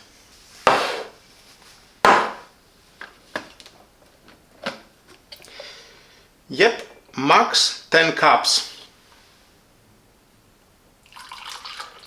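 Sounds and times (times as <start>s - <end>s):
objects set down on hard surface: 2.0s - 2.5s
sharp knocks: 2.0s - 2.5s.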